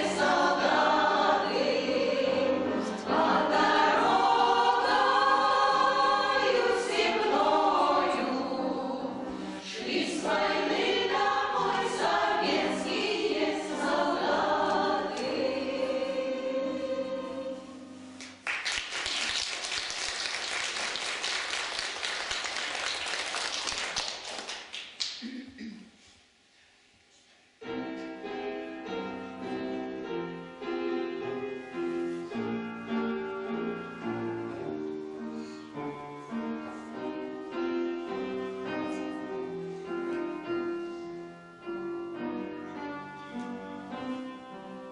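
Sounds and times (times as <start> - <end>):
choir singing in harmony: 0.0 - 18.2
audience applause: 18.4 - 25.2.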